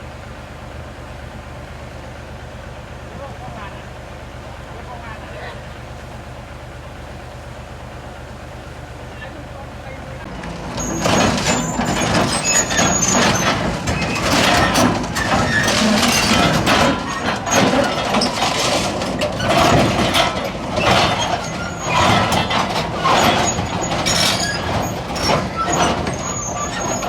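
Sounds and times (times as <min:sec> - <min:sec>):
diesel engine under load: 0:00.0 - 0:27.0
clattering and scraping: 0:10.2 - 0:27.0.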